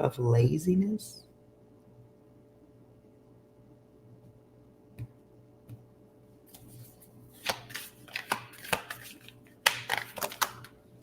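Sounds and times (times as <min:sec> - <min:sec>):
cards being shuffled: 0:06.5 - 0:10.8.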